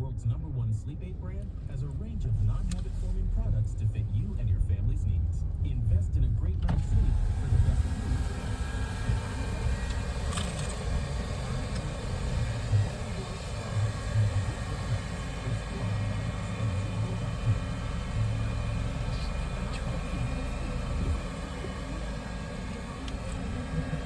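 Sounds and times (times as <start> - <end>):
car engine rumble from cabin: 0.0 - 24.0.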